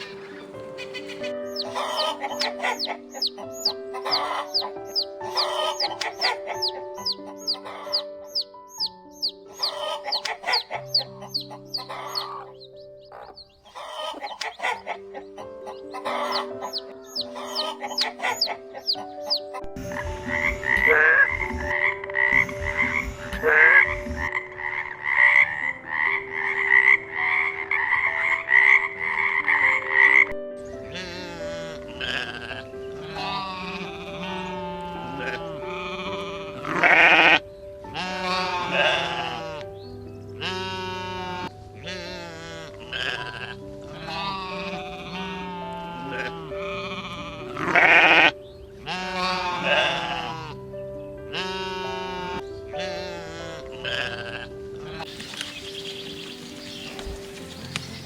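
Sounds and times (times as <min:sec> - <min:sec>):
chicks peeping: 0:00.0 - 0:30.2, 0:55.0 - 0:58.0
frogs croaking: 0:00.0 - 0:39.8, 0:40.4 - 0:58.0
background music sustained notes: 0:00.0 - 0:58.0.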